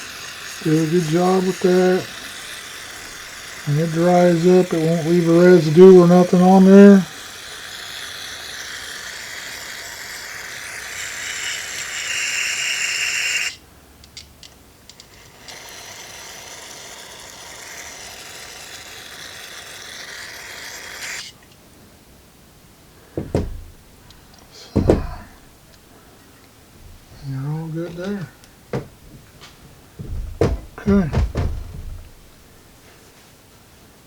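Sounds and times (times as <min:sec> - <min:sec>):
aerosol can spraying: 0:00.0 - 0:13.6, 0:15.0 - 0:21.4.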